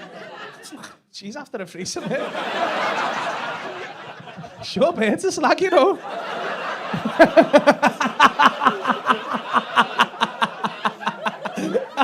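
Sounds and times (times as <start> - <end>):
audience laughing: 0.0 - 1.0, 2.0 - 5.1, 5.8 - 12.0
person laughing loudly: 6.9 - 12.0.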